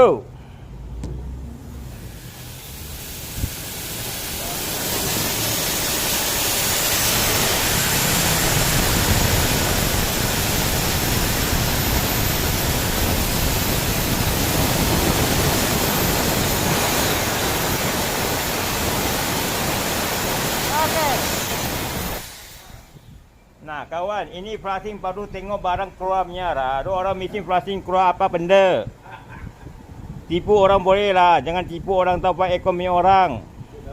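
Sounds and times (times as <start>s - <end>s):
machine blowing steady rushing hiss: 1.7s - 23.5s.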